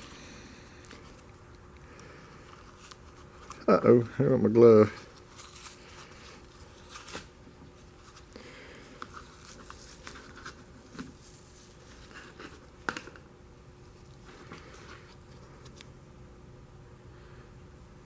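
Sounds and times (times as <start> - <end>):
filter paper rustling: 4.7 - 13.2.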